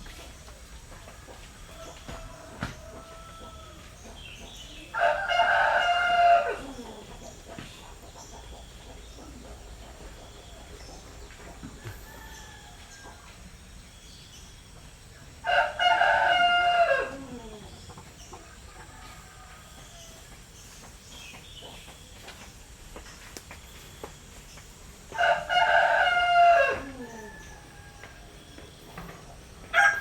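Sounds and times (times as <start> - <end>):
faint chicken calls: 0.2 - 13.6, 14.7 - 22.6, 23.6 - 30.0
rooster crowing: 1.6 - 3.9, 4.9 - 7.1, 11.8 - 13.3, 15.4 - 17.6, 18.8 - 20.2, 25.1 - 28.6, 29.6 - 30.0.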